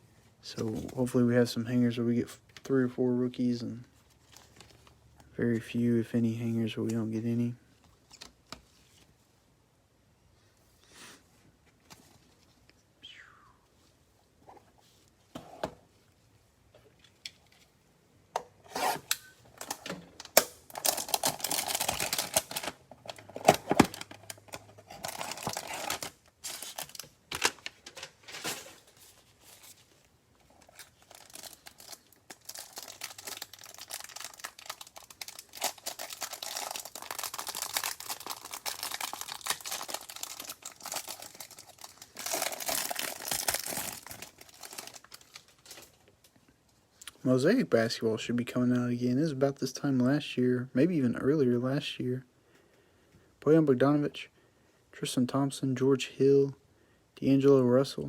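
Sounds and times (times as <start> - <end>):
plastic wrapper tearing and crinkling: 19.0 - 29.0, 30.5 - 46.1
packaging clicks and rustles: 19.6 - 29.8, 30.4 - 46.1.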